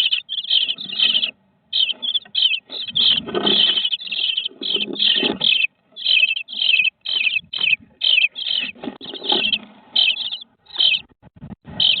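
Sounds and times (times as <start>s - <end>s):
nestlings giving high calls: 0.0s - 11.1s, 11.7s - 12.0s.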